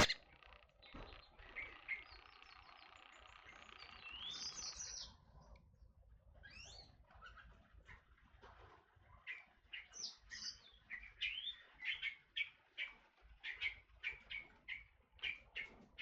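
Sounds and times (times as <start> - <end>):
bird calling sharp notes: 0.0 - 0.2.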